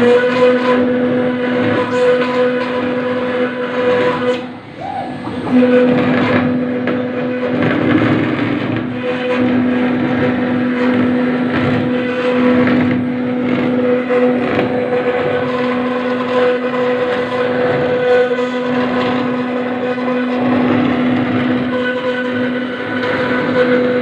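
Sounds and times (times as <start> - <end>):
router spindle whine: 0.0 - 24.0
bit grinding into stone: 5.2 - 24.0.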